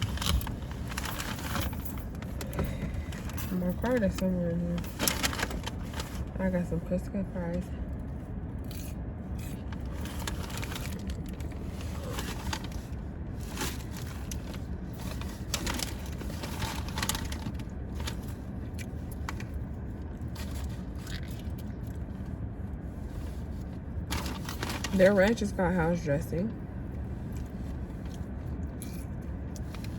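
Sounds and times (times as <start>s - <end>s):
paper bag rustling and crinkling: 0.0s - 6.5s, 9.6s - 18.5s, 23.1s - 25.4s
low car hum: 0.0s - 29.9s.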